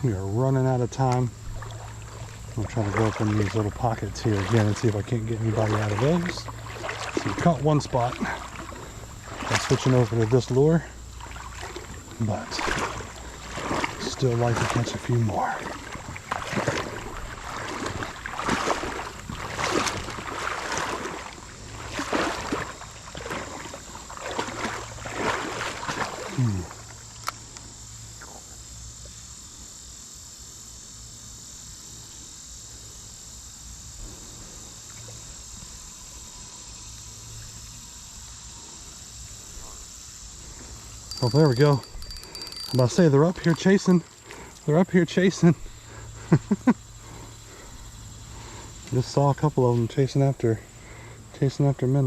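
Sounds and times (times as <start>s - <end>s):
water sloshing and splashing: 0.9s - 27.4s, 40.4s - 49.2s
thin high steady tone: 34.4s - 52.0s.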